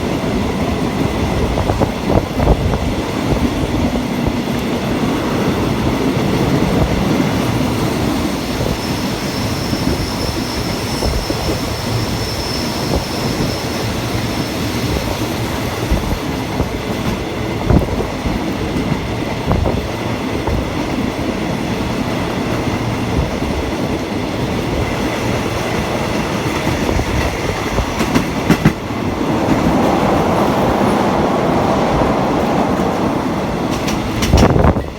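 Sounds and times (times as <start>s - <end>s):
train wheels rumbling: 0.0s - 34.9s
faint high squeal: 8.4s - 14.6s.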